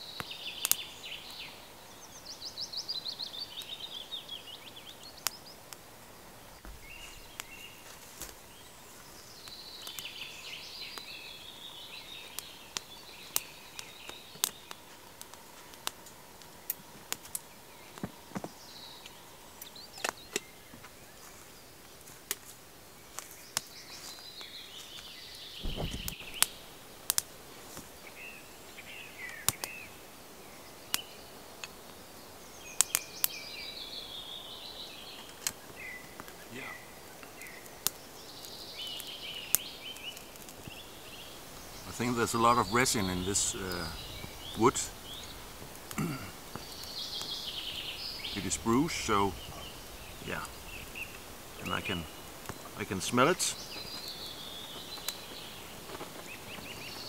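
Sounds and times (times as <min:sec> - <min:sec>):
birds singing: 0:00.0 - 0:57.0
wood fire crackling and popping: 0:00.0 - 0:57.0
low thump: 0:25.6 - 0:26.5.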